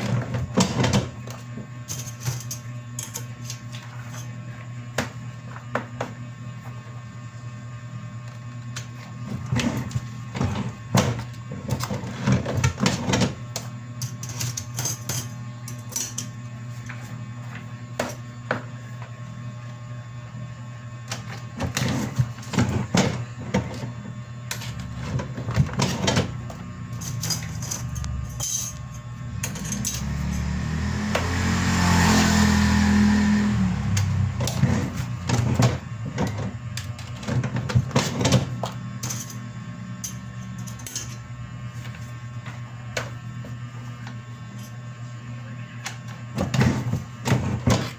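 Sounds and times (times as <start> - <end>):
loud whirring noise: 20.1 - 47.9
machine humming: 21.0 - 43.4.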